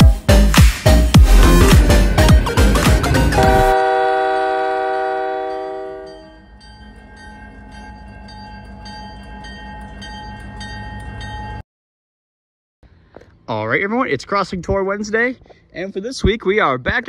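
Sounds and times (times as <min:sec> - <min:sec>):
locomotive rumble: 0:01.1 - 0:11.6
locomotive air horn: 0:03.2 - 0:06.4
railroad crossing bell ringing: 0:03.2 - 0:11.6.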